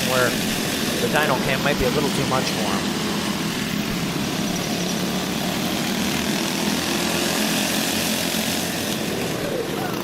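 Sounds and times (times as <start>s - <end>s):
go-kart engines buzzing: 0.0s - 10.0s.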